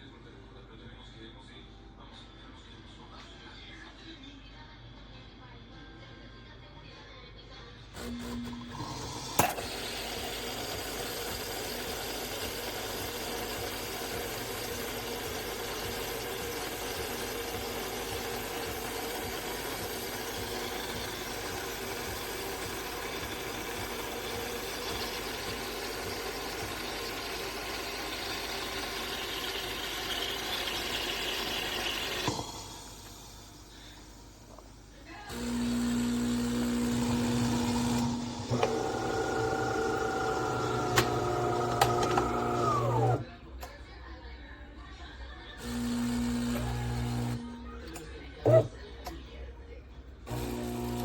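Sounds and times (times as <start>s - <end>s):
espresso machine humming: 8.0s - 34.7s, 35.3s - 43.3s, 45.6s - 48.7s, 50.3s - 51.0s.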